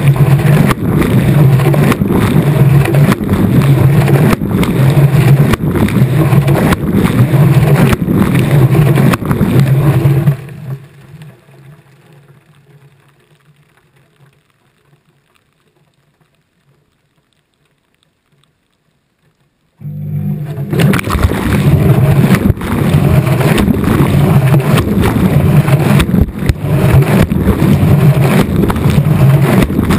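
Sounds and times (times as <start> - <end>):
washing machine motor hum: 0.0 - 10.5, 19.8 - 29.9
water sloshing in drum: 0.0 - 10.6.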